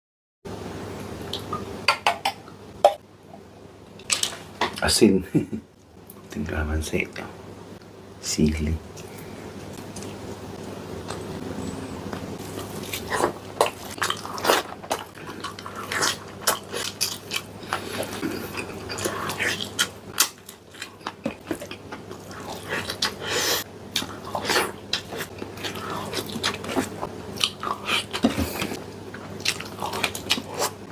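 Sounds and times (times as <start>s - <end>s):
person chewing: 12.1s - 30.8s.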